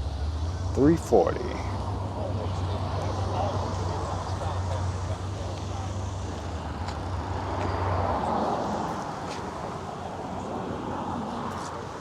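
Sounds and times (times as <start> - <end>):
outdoor background noise: 0.0 - 12.0
vehicle engine humming: 0.0 - 12.0.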